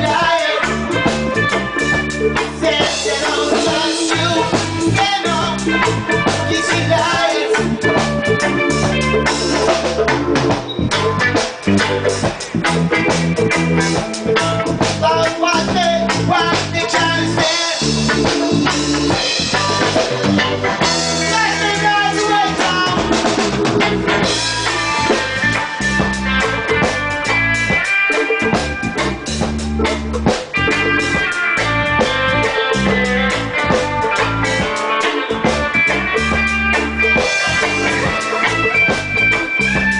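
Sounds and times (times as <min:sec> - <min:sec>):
bass drum: 0:00.0 - 0:39.9
reggae band playing: 0:00.0 - 0:39.9.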